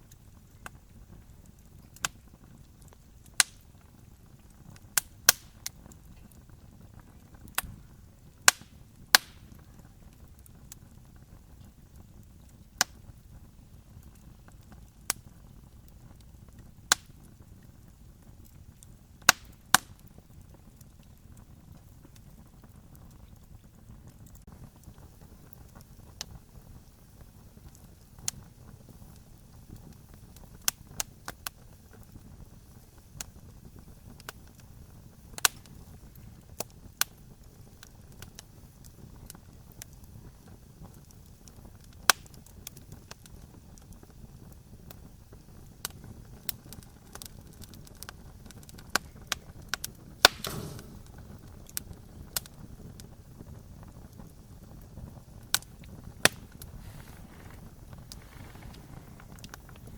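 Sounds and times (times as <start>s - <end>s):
campfire crackling and popping: 0.0s - 59.9s
low steady rumble: 49.2s - 59.9s.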